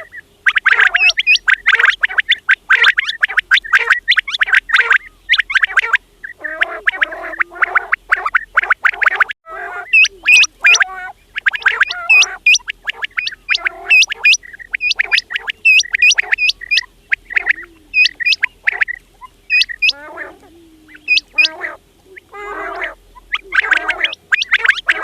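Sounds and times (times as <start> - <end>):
quail calling: 0.0 - 25.0.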